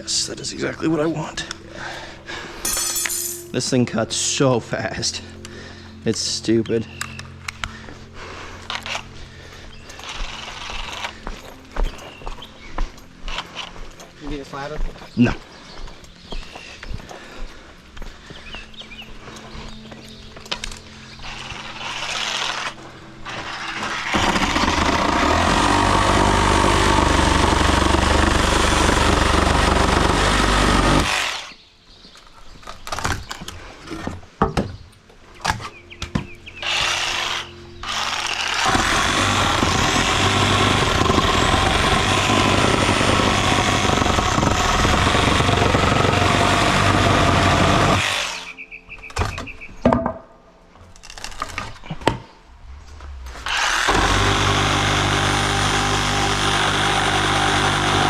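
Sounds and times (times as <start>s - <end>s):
reciprocating saw cutting wood: 21.2s - 31.6s, 36.6s - 48.6s, 53.3s - 58.0s
wood knocking and clattering: 49.0s - 50.3s.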